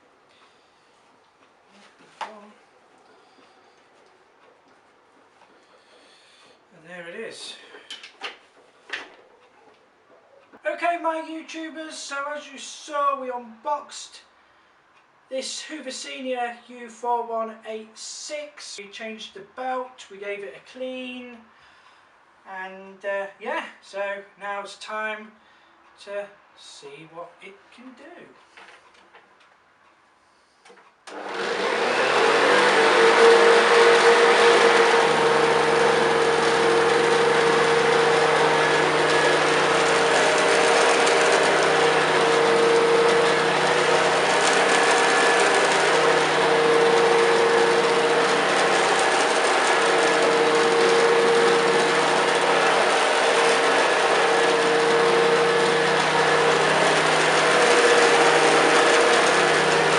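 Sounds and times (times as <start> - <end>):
vacuum cleaner motor whine: 31.1 - 59.9.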